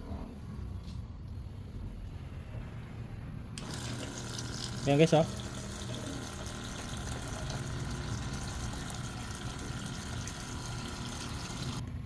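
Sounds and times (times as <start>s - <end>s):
pump humming: 3.6s - 11.8s
water pouring into a container: 3.6s - 11.8s.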